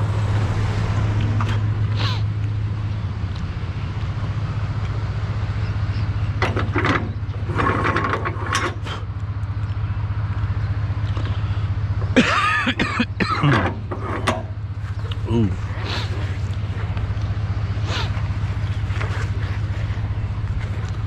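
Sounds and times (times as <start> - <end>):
truck engine humming: 0.0 - 21.0
mechanical clatters: 6.4 - 9.1.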